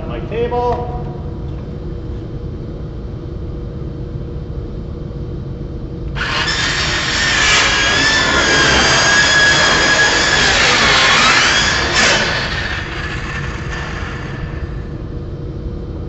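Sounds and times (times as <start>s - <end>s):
circular saw cutting wood: 6.2s - 14.9s.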